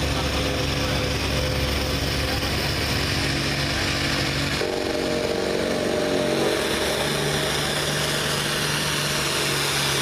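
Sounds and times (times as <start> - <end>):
higher engine tone: 0.0 - 10.0
tractor engine running: 0.0 - 10.0.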